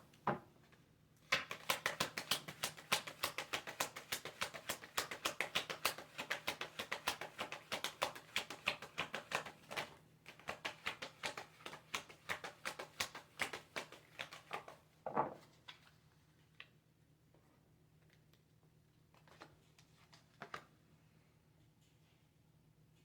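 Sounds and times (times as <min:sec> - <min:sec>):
cards being shuffled: 0:01.2 - 0:15.9, 0:19.1 - 0:20.7.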